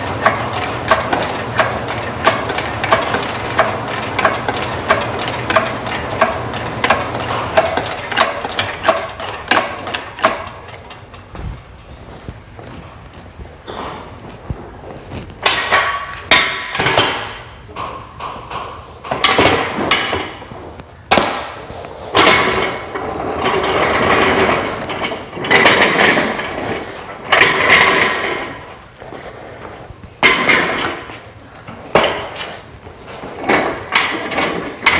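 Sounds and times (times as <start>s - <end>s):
hand tools knocking on metal: 0.0s - 12.8s, 15.4s - 21.6s, 33.4s - 34.9s
rough grinding noise: 0.0s - 17.3s.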